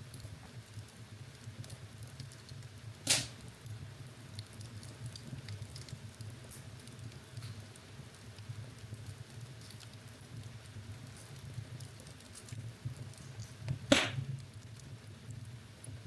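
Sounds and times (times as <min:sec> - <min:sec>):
fire crackles: 0:00.0 - 0:16.0
fire flames rumbling: 0:00.0 - 0:16.0
loud sharp pop: 0:03.0 - 0:03.4, 0:13.9 - 0:14.3.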